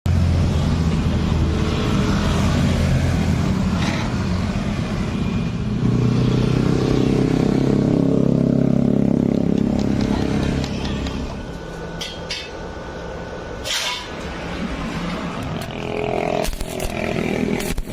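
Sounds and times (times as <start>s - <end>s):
steady machine hum: 8.8s - 17.9s.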